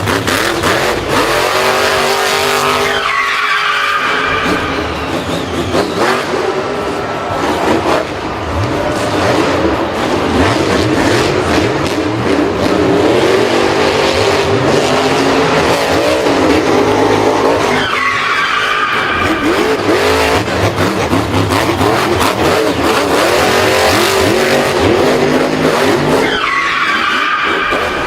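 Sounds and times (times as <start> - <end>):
racing engines revving: 0.0 - 28.0
tires skidding: 0.0 - 28.0
high falling screech: 2.6 - 7.4.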